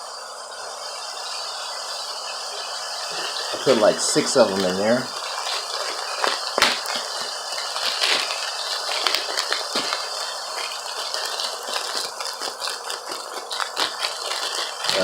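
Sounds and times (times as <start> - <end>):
meat sizzling: 0.0 - 15.0.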